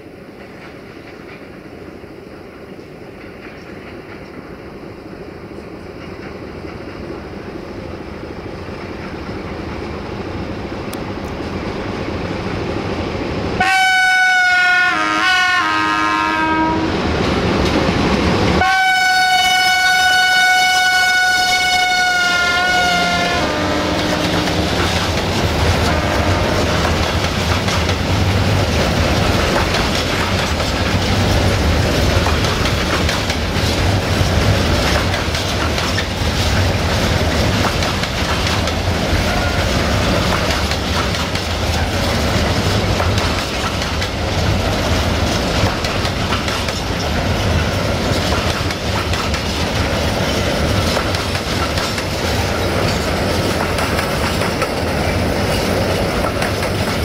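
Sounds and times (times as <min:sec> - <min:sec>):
freight train rolling rumble: 0:00.0 - 0:57.0
locomotive horn blast: 0:13.6 - 0:17.0, 0:18.6 - 0:24.8, 0:25.8 - 0:26.8, 0:39.2 - 0:39.9.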